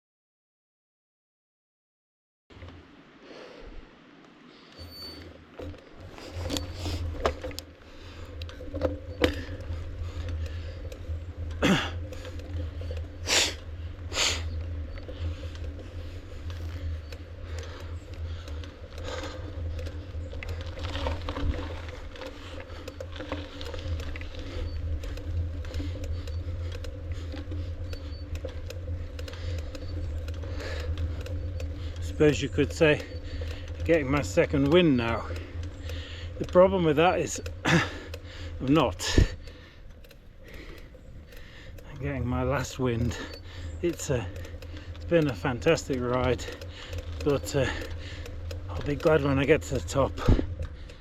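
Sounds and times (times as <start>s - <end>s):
bike clicks and rattles: 4.3s - 51.0s.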